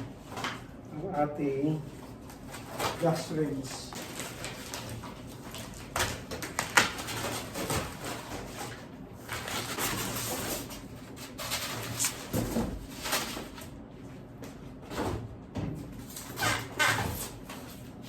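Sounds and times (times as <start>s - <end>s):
cardboard packaging scraping and rustling: 2.4s - 13.7s.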